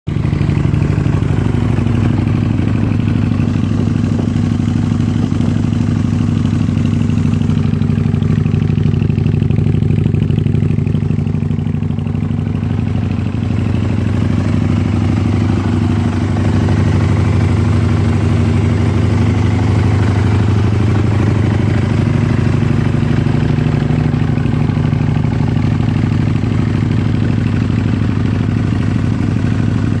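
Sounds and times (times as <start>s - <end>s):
motorcycle engine idling: 0.1s - 30.0s.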